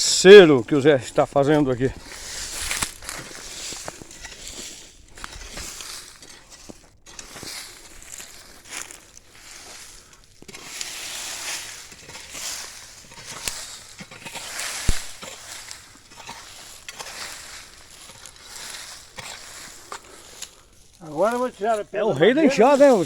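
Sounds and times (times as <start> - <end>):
hoe scraping leaves and soil: 0.0 - 23.0
sharp knock: 14.9 - 15.2.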